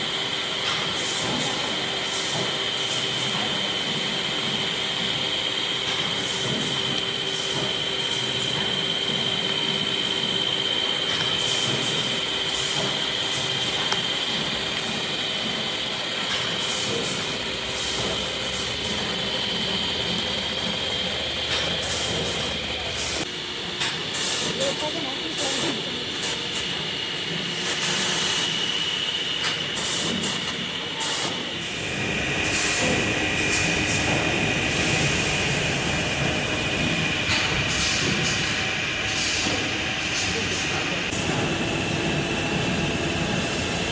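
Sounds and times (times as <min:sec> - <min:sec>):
factory machinery whining: 0:00.0 - 0:43.9
high-pitched whine: 0:31.6 - 0:43.9.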